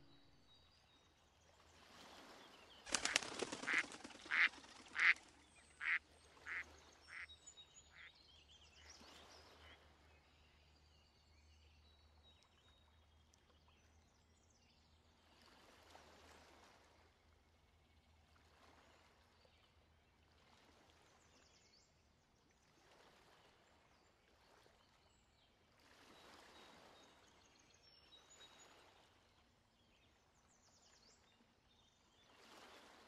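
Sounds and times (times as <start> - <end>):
duck quacking: 3.7 - 5.2, 5.8 - 7.2.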